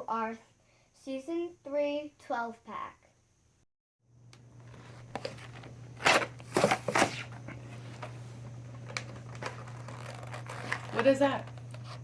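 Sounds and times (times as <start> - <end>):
low steady hum: 4.1 - 12.0
plastic packaging crinkling: 8.8 - 12.0.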